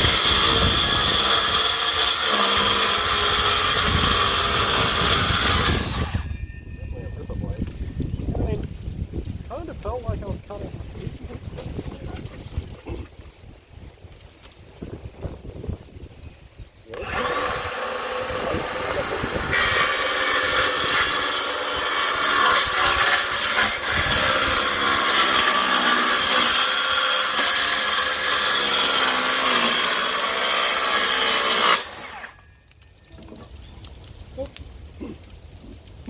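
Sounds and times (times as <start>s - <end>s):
circular saw cutting wood: 0.0s - 6.4s, 16.9s - 32.4s.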